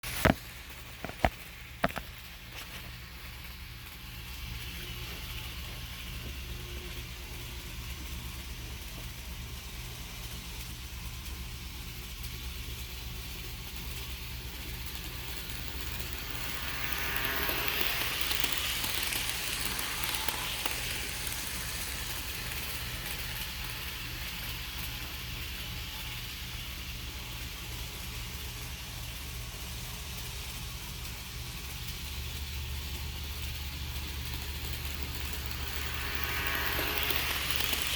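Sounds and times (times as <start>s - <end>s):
model train electric hum: 0.0s - 37.9s
rolling wheel noise: 13.9s - 25.6s, 32.5s - 37.9s.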